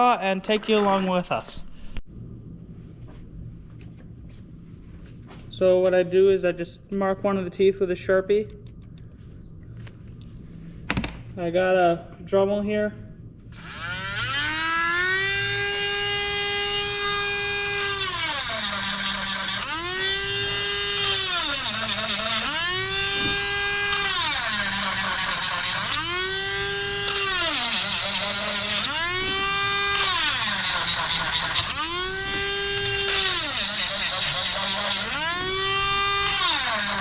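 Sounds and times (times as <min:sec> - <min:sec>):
rotary tool motor whine: 0:13.6 - 0:37.0.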